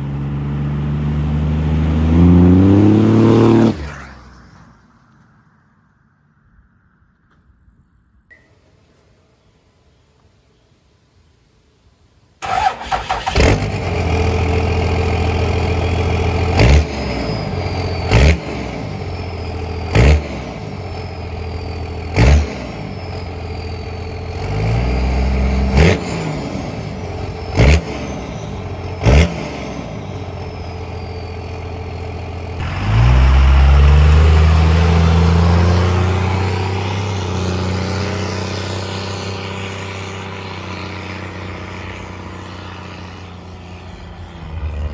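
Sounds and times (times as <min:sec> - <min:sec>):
diesel truck engine revving: 0:00.0 - 0:04.4, 0:12.4 - 0:44.9
high falling whine: 0:39.5 - 0:44.9.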